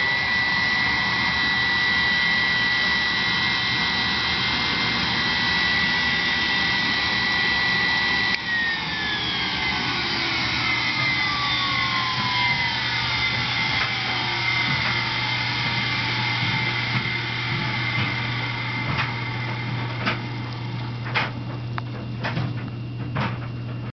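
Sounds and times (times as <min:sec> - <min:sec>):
vacuum cleaner motor whine: 0:00.0 - 0:23.9.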